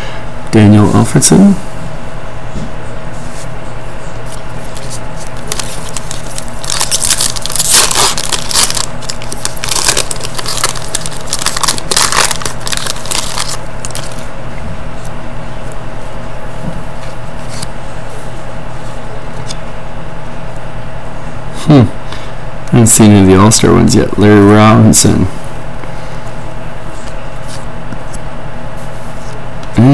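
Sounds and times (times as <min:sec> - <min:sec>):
steady hum: 0:00.0 - 0:29.9
foil wrapper crinkling and tearing: 0:04.7 - 0:14.3.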